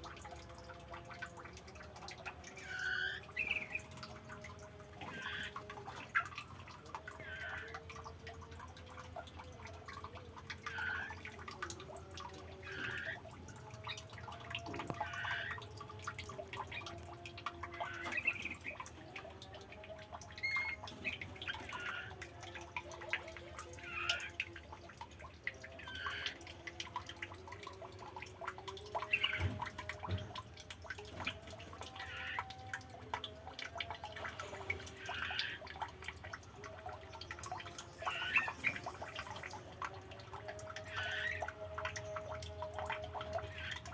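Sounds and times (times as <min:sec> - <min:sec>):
water drops plopping: 0:00.0 - 0:43.9
water trickling: 0:00.0 - 0:43.9.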